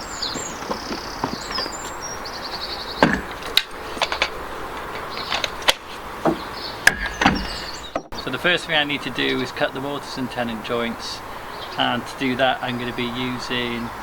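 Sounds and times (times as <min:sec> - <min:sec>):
birds chirping: 0:00.0 - 0:14.0
knocks on timber: 0:03.0 - 0:03.4, 0:06.2 - 0:08.2.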